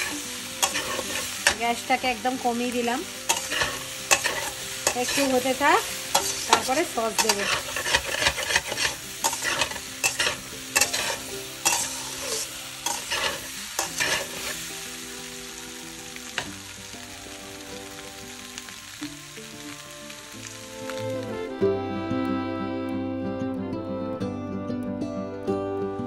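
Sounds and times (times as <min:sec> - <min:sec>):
food sizzling: 0:00.0 - 0:23.1
spoon scraping steel pot: 0:00.6 - 0:01.6, 0:03.3 - 0:05.4, 0:06.1 - 0:14.5.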